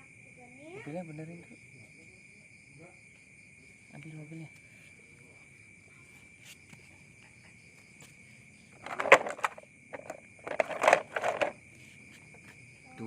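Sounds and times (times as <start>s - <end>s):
insects trilling: 0.0s - 13.0s
plastic toy truck rattling: 8.8s - 11.6s.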